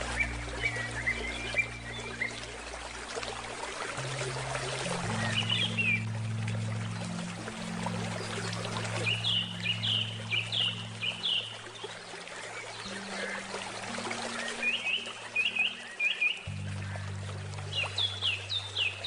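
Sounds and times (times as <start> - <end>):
low handpan tones: 0.0 - 19.0
river water flowing: 0.0 - 19.0
bird chirping: 7.9 - 11.6.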